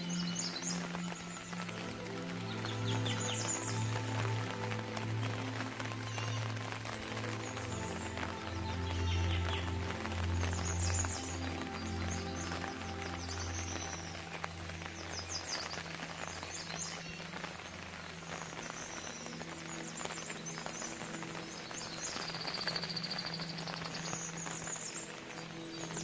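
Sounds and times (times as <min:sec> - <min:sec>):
birds chirping: 0:00.0 - 0:26.0
rain falling: 0:00.0 - 0:26.0.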